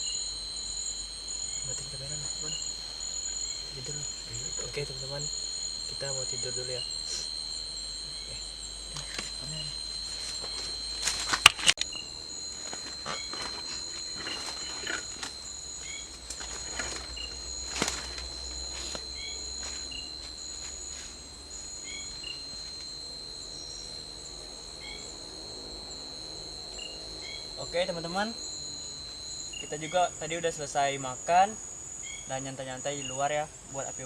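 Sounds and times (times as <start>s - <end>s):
cricket-like insect trill: 0.0s - 34.0s
insect pulsing: 0.0s - 34.0s
short insect chirps: 0.0s - 34.0s.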